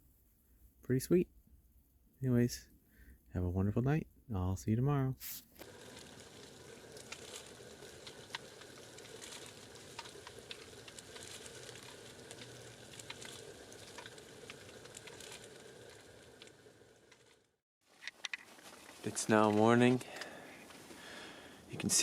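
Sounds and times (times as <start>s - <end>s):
snow pattering on plastic: 5.2s - 22.0s.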